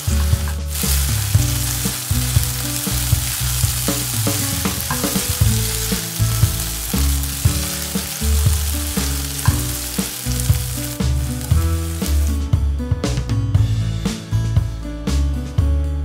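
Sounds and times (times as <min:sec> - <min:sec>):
spatula stirring in pan: 0:00.0 - 0:12.3
chicken sizzling in oil: 0:00.0 - 0:12.5
background music: 0:00.0 - 0:16.0.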